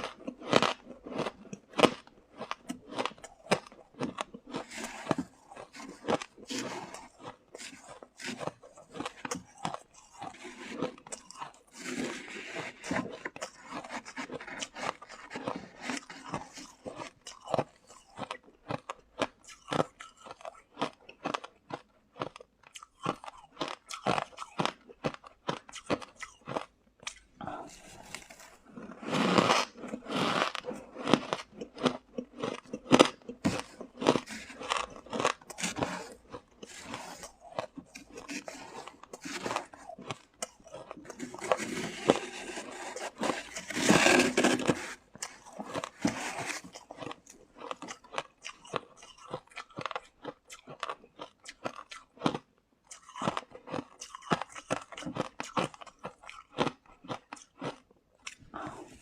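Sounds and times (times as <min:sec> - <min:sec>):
crunching and chewing frost: 0:00.0 - 0:59.0.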